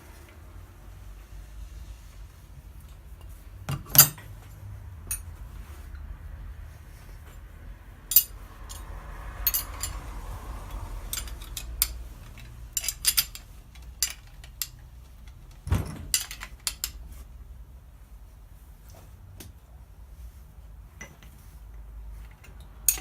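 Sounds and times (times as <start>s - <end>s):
metal parts and tools clinking: 2.9s - 4.3s, 5.0s - 5.4s, 8.1s - 17.1s, 22.2s - 23.0s.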